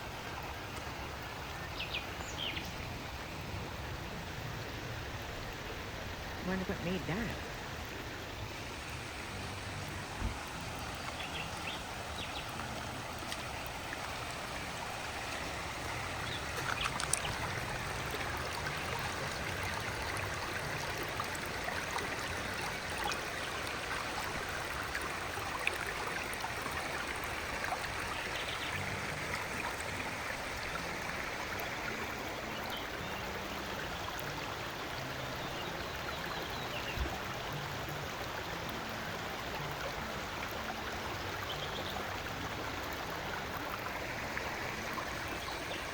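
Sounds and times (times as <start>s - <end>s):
river stream rushing and gurgling: 0.0s - 45.9s
faint clicks: 16.6s - 17.4s.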